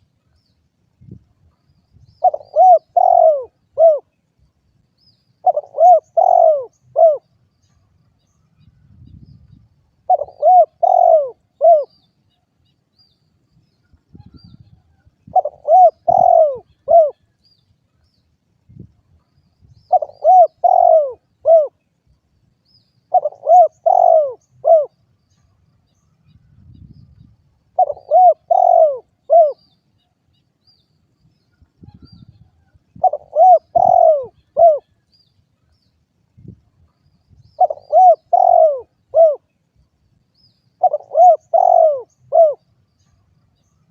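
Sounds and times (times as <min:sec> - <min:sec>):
dove cooing: 0:02.2 - 0:04.2, 0:05.4 - 0:07.3, 0:10.0 - 0:12.0, 0:15.3 - 0:17.3, 0:19.9 - 0:21.8, 0:23.1 - 0:25.0, 0:27.8 - 0:29.7, 0:31.8 - 0:35.0, 0:37.6 - 0:39.5, 0:40.8 - 0:42.6.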